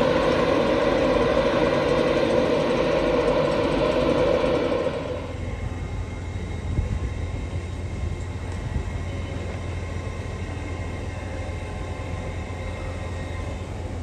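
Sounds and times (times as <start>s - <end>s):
train humming at platform: 0.0s - 14.0s.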